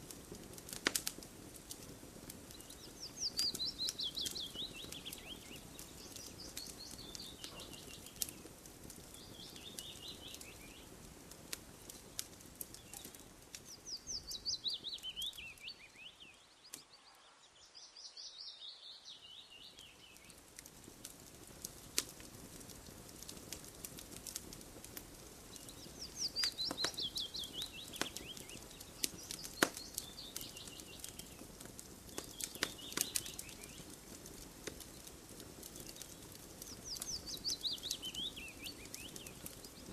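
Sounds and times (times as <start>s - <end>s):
campfire crackling and popping: 0.0s - 17.7s, 18.6s - 39.9s
songbird trilling: 26.0s - 28.6s.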